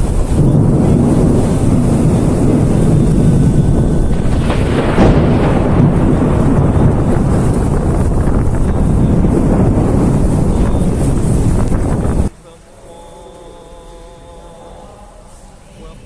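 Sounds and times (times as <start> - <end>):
thunder rumbling: 0.0 - 12.3
heavy rain: 0.0 - 16.0.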